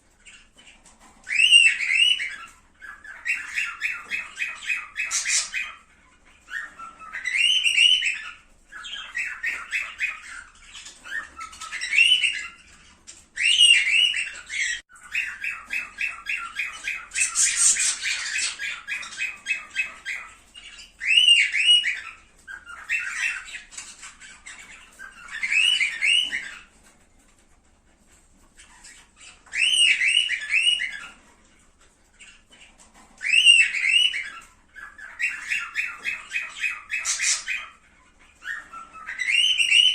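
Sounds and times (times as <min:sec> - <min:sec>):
cockatiels chattering chirps: 0:00.0 - 0:39.9
whistled squawks: 0:13.4 - 0:26.7, 0:28.9 - 0:31.2, 0:38.4 - 0:39.9.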